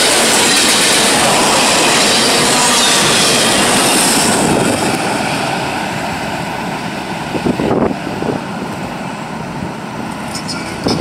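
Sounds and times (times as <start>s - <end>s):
freight train passing: 0.0s - 11.0s.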